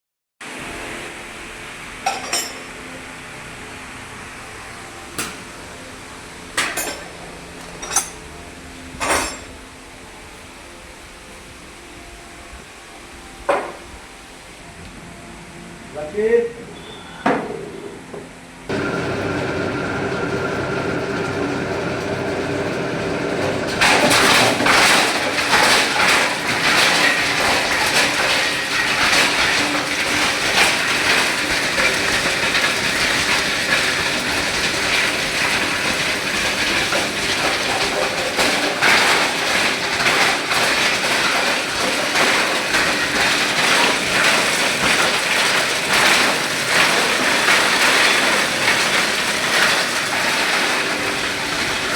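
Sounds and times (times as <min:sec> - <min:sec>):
grinder motor hum: 0:18.7 - 0:27.8
plastic grinding crunching clatter: 0:18.7 - 0:51.9.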